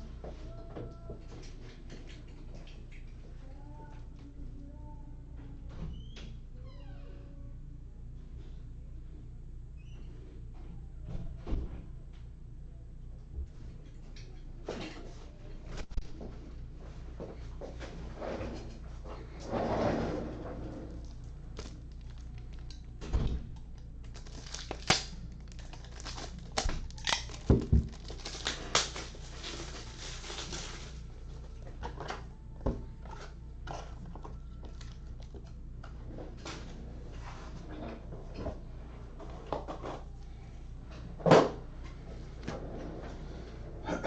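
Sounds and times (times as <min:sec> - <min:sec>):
steady low hum: 0:00.0 - 0:44.0
crinkling: 0:20.9 - 0:23.0, 0:23.6 - 0:31.7.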